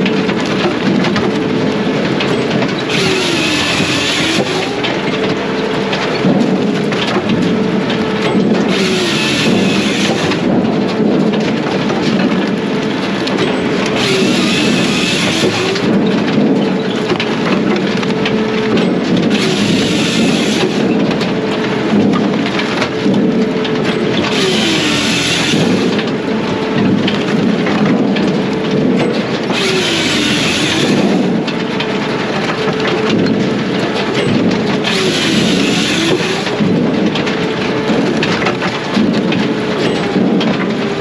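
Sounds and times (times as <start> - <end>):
diesel firewood processor running: 0.0 - 41.0
harsh machine burst: 2.9 - 5.2, 8.7 - 10.5, 14.0 - 16.0, 19.3 - 20.9, 24.2 - 26.0, 29.5 - 31.4, 34.8 - 36.7.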